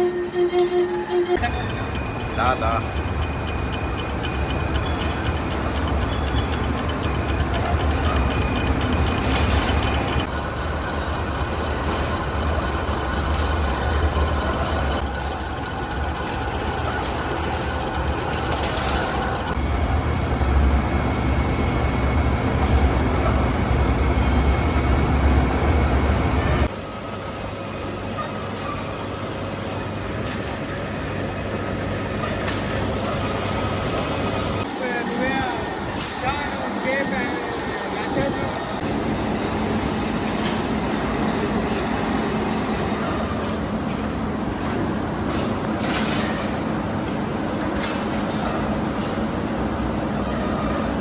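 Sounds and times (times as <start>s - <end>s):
heavy industrial machinery running: 1.3s - 26.8s.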